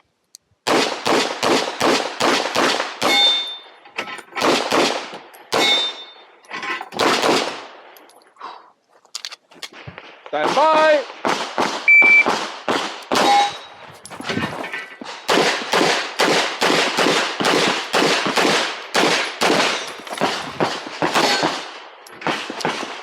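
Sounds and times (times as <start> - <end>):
rapid pistol fire: 0.7 - 3.2, 4.4 - 5.7, 15.3 - 21.7
shot timer beep: 11.9 - 12.3, 13.2 - 13.7.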